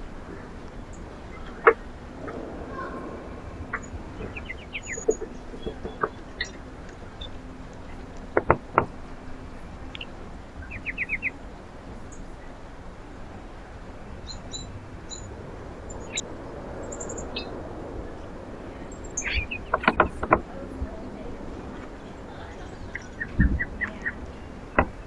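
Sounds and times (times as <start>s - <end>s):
small songbirds chirping: 0.0s - 25.0s
steady background hiss: 0.0s - 25.0s
sharp knocks: 24.8s - 25.0s.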